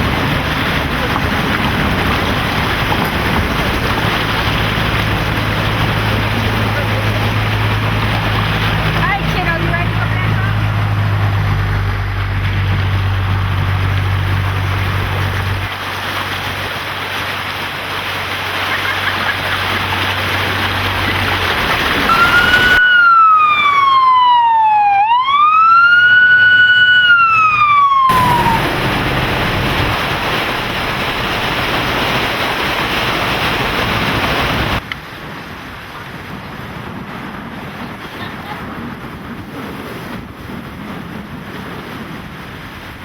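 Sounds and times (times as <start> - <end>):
steady rushing noise: 0.0 - 22.8, 28.1 - 38.0
emergency siren wailing: 22.0 - 30.2.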